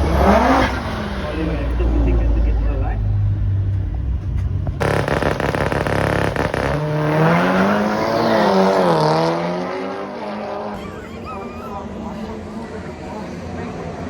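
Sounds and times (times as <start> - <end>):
drag racing cars accelerating: 0.0 - 2.8, 4.8 - 14.0
rapid engine crackle: 4.8 - 7.1.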